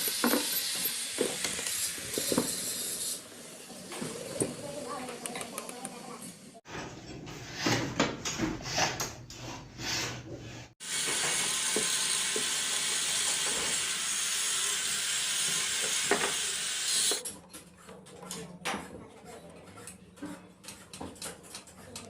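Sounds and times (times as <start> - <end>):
knocks and scrapes on metal: 6.7 - 10.7.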